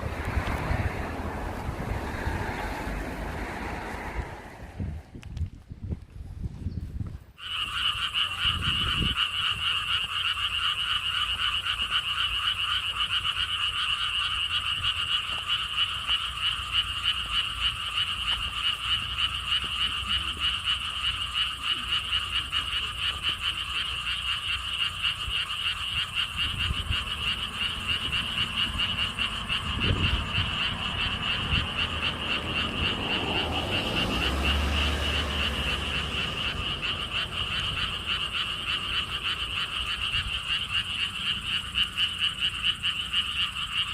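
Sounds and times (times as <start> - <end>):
low rumbling: 0.0 - 7.1
frogs chorus calling: 7.4 - 43.9.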